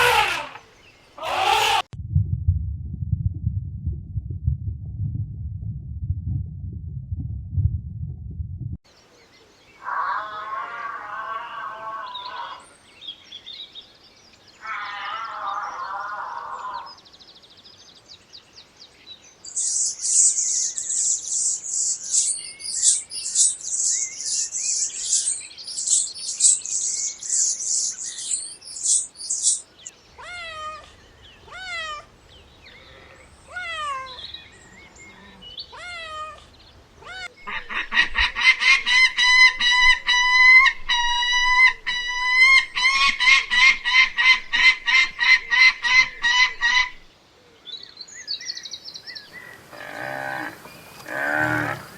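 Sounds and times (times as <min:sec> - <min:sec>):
bird calls: 0:19.6 - 0:51.9.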